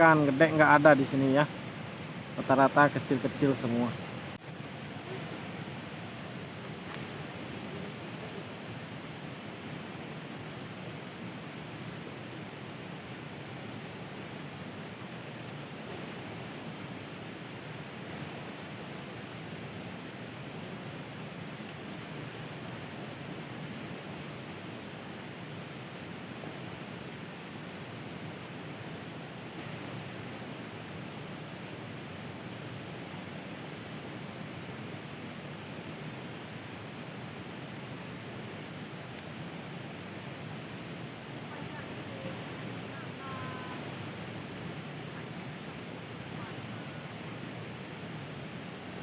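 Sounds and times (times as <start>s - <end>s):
rain hissing: 0.0s - 11.8s, 33.7s - 49.0s.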